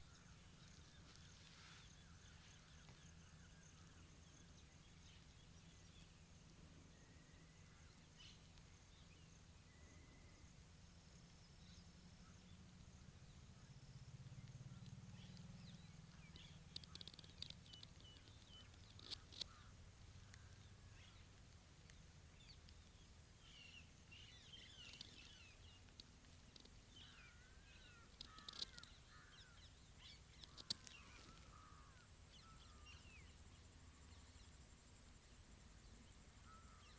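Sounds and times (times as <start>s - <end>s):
steady high-pitched whine: 0.0s - 36.9s
bird calls: 14.4s - 34.7s, 35.8s - 36.9s
sharp clicks: 16.3s - 19.6s, 28.0s - 29.0s, 30.3s - 31.0s.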